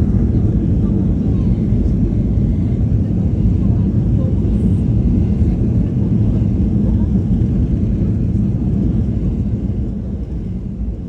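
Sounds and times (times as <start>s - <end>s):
jet airliner rumble: 0.0s - 11.0s.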